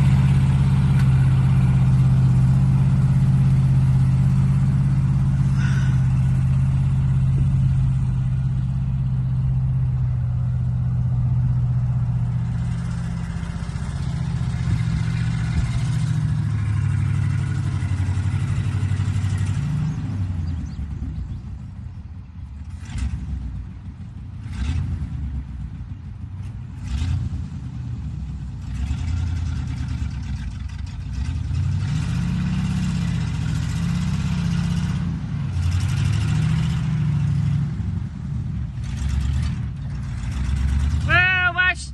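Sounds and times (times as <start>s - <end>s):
truck engine running: 0.0s - 41.9s.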